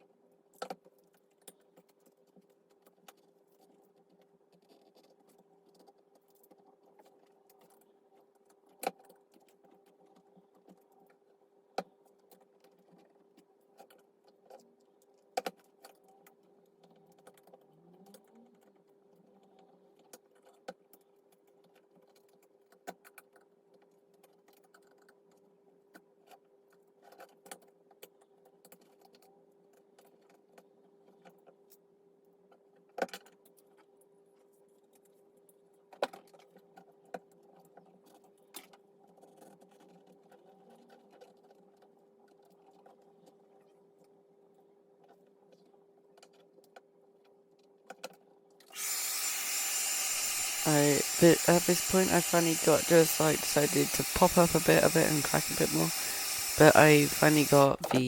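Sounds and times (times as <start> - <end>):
steady hum: 49.2 - 58.0.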